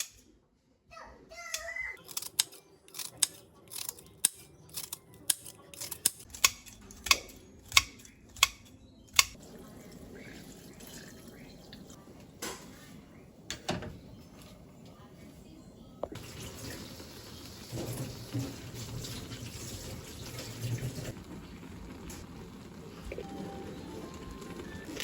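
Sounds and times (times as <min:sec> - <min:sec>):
knife cutting food: 0:02.0 - 0:08.6.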